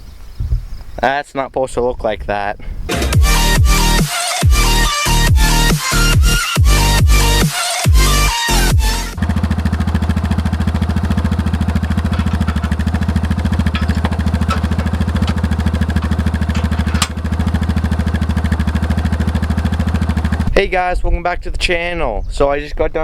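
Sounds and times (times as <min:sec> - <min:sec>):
vehicle engine idling: 0:08.0 - 0:20.5.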